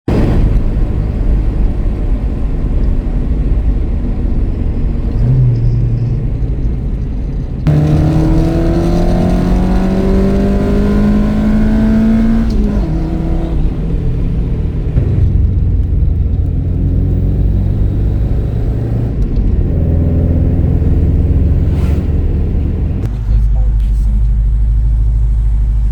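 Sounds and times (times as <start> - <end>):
car engine running: 0.1 - 25.9
car engine revving up: 7.6 - 23.3.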